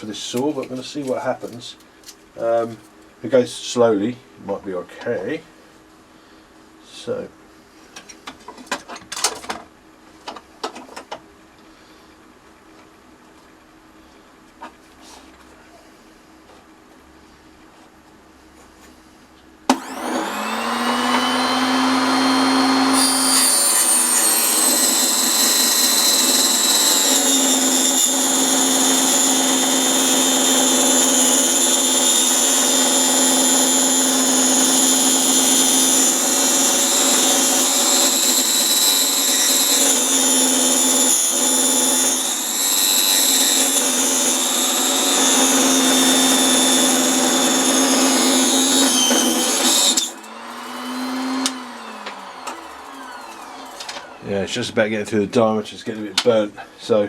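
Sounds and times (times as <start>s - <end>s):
table saw cutting wood: 19.7s - 54.8s.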